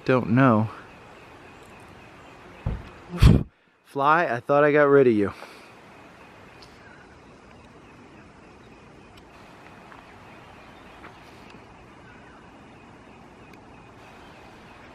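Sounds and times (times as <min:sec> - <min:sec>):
faint outdoor background noise: 0:00.0 - 0:14.9
light ticks: 0:07.4 - 0:07.8, 0:09.1 - 0:10.1, 0:11.0 - 0:11.6.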